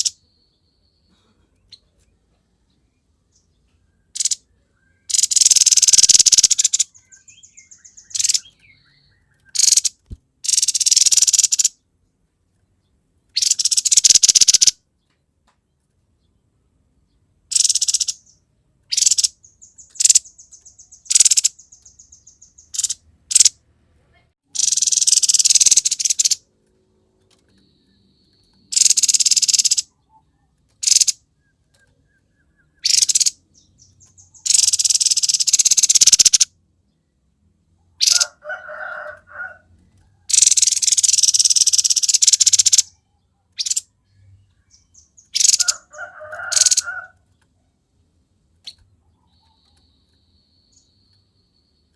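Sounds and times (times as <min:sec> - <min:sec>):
bird harsh rasping calls: 0:05.1 - 0:11.8, 0:13.4 - 0:14.8, 0:17.5 - 0:23.5, 0:24.5 - 0:26.4, 0:28.7 - 0:29.9, 0:30.8 - 0:31.2, 0:32.6 - 0:36.5, 0:38.0 - 0:39.6, 0:40.3 - 0:43.0, 0:43.6 - 0:43.9, 0:44.7 - 0:47.2.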